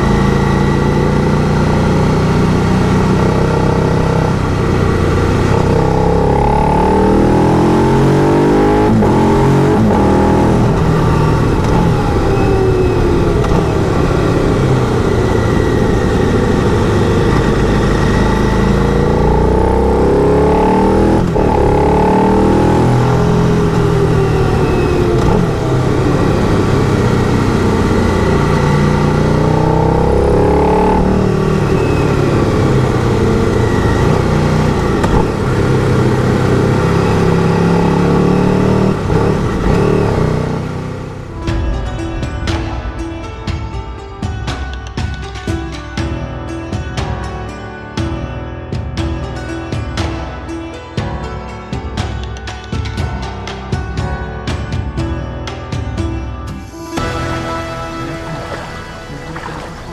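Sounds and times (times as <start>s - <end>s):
motorcycle engine accelerating: 0.0s - 45.1s.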